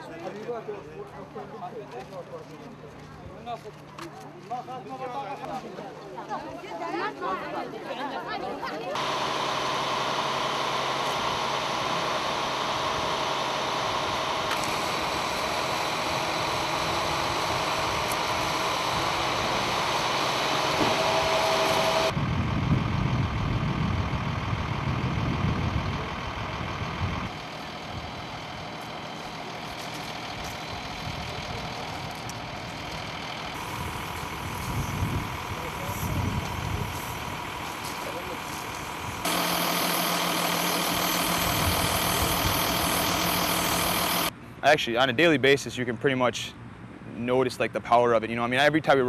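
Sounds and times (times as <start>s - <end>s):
heavy low engine rumble: 8.4s - 49.0s
vehicle engines idling: 8.9s - 45.4s.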